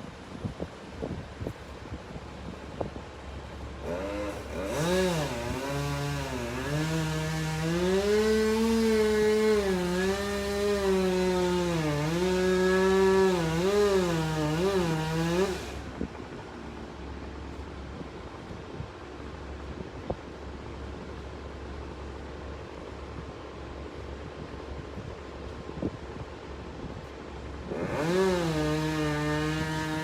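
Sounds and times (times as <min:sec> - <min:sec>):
chainsaw cutting wood: 0:03.7 - 0:16.4, 0:27.6 - 0:30.0.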